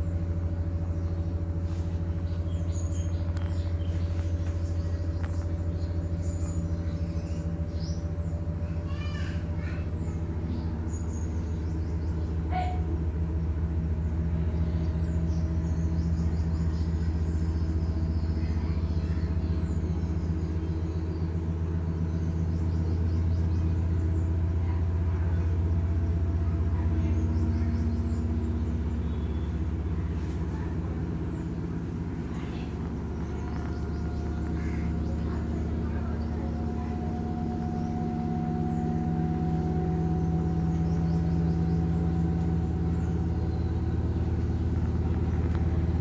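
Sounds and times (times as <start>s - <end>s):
washing machine motor hum: 0.0s - 46.0s.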